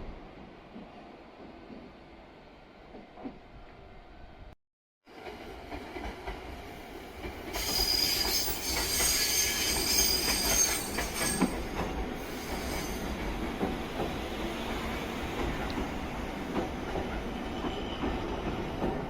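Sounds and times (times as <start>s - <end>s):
train wheels squealing on rails: 7.4s - 19.0s.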